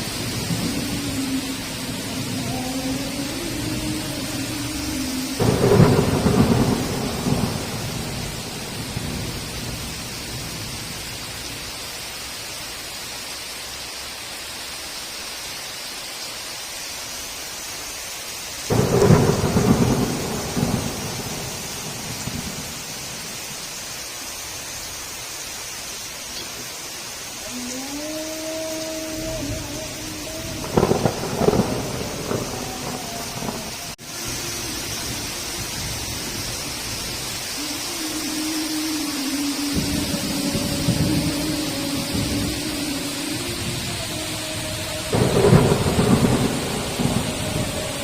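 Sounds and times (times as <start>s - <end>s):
thunder rumbling and crackling: 0.0s - 11.4s, 18.7s - 23.7s, 29.1s - 37.7s, 39.7s - 48.0s
heavy rain: 0.0s - 48.0s.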